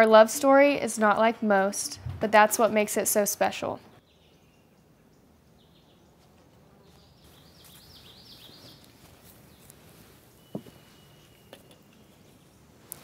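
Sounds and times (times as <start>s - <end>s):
bird chirping faintly: 3.9s - 12.7s.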